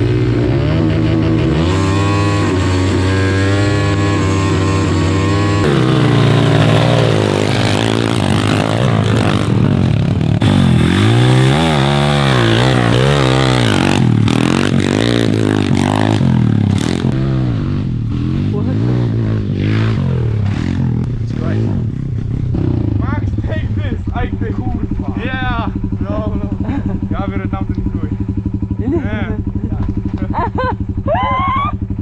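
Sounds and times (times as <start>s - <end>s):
pit bike engine revving: 0.0s - 23.2s.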